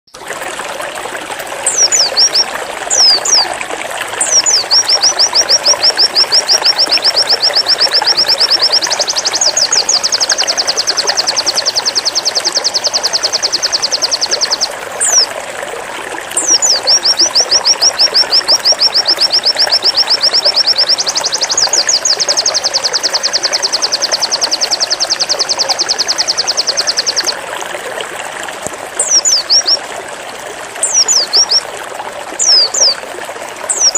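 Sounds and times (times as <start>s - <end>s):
bird singing high rapid notes: 1.6s - 3.5s, 4.2s - 15.3s, 16.4s - 27.4s, 29.0s - 29.8s, 30.8s - 31.7s, 32.4s - 33.0s, 33.7s - 33.9s.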